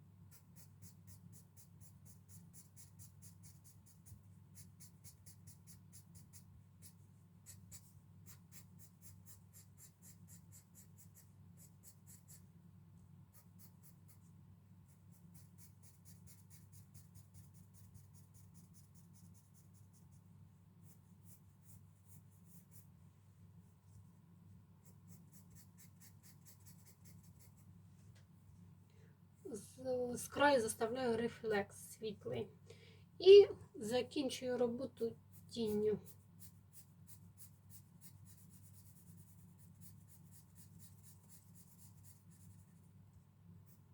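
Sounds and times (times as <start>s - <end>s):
pencil shading on paper: 0.2s - 12.6s, 13.2s - 23.0s, 24.7s - 27.7s, 34.5s - 43.0s.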